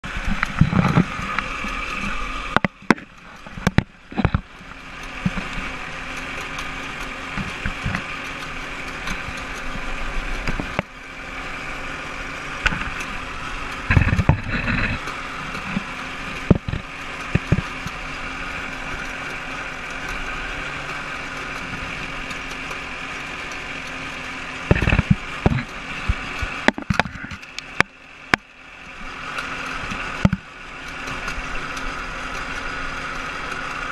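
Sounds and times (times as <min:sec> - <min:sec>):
boat engine idling: 0:00.0 - 0:33.9
knocks and clicks: 0:00.2 - 0:09.8, 0:13.7 - 0:18.0, 0:24.6 - 0:28.5.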